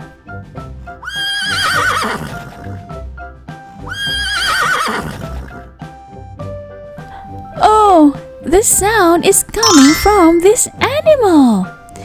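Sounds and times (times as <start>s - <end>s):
light background music: 0.0s - 12.0s
horse whinnying: 1.0s - 2.9s, 3.9s - 5.6s.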